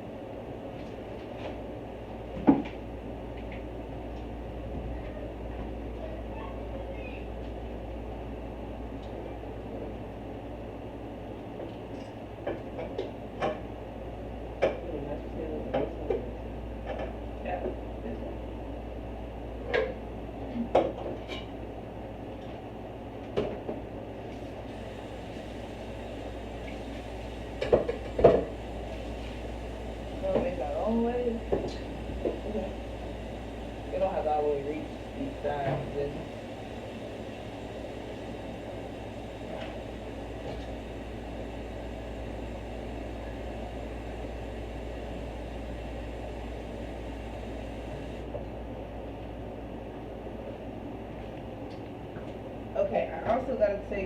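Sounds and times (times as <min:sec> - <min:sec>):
low background hum: 0:00.0 - 0:54.0
appliance motor humming: 0:24.6 - 0:48.4.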